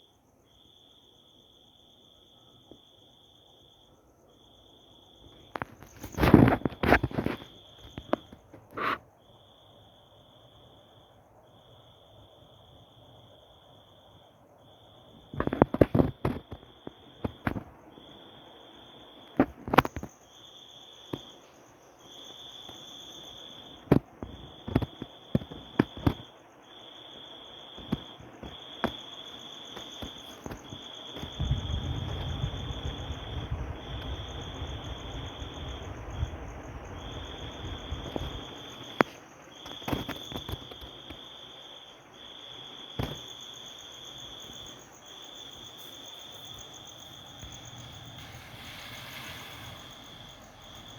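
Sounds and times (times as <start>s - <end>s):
low rumble: 46.9s - 50.9s.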